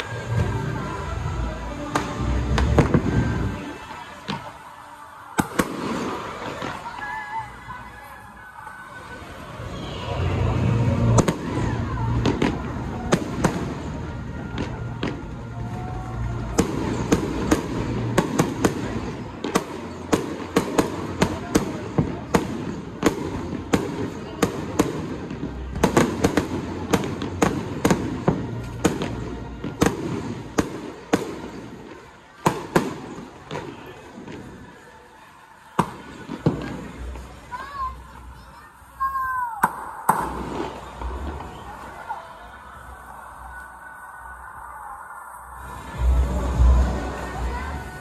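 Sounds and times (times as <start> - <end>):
fireworks banging and popping: 1.8 - 4.7, 5.3 - 7.5, 10.1 - 34.9, 35.6 - 38.1, 39.4 - 42.2.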